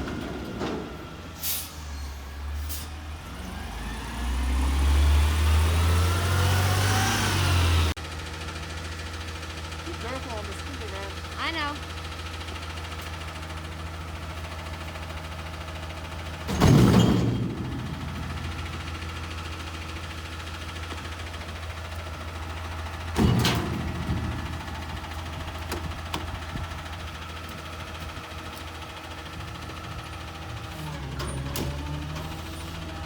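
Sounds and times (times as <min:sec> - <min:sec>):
garbage truck engine running: 0:00.0 - 0:33.0
loud metallic bangs: 0:16.3 - 0:20.4.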